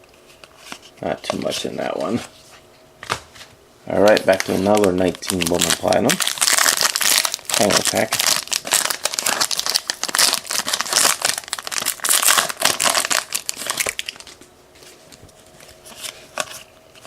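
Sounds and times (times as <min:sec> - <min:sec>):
wrapper crinkling: 0:04.0 - 0:14.4.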